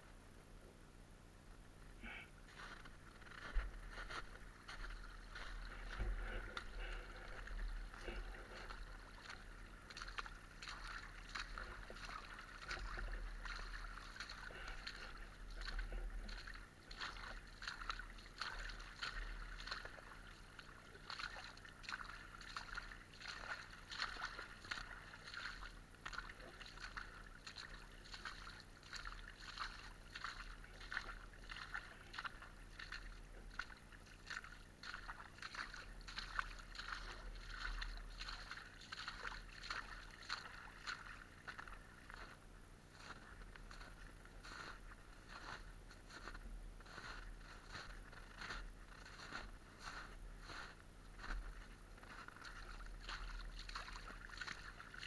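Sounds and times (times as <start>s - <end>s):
low rumble: 1.6s - 17.4s
water splashing and rushing: 5.3s - 42.2s.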